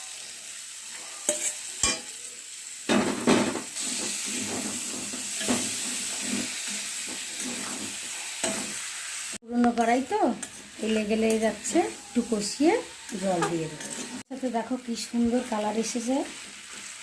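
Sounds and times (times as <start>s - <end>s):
food sizzling in a pan: 0.0s - 17.0s
spatula scraping a pan: 0.9s - 2.1s, 3.8s - 9.2s, 10.3s - 14.3s.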